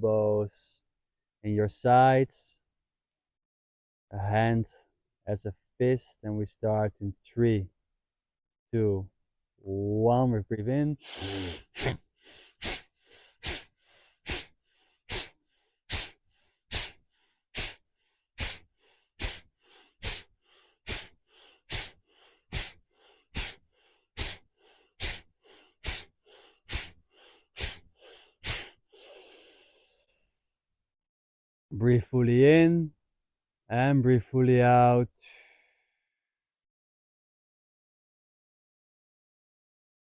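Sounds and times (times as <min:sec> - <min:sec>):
breaths in: 0:11.0 - 0:30.3, 0:35.2 - 0:36.1
forceful breaths out through nose: 0:11.0 - 0:30.3.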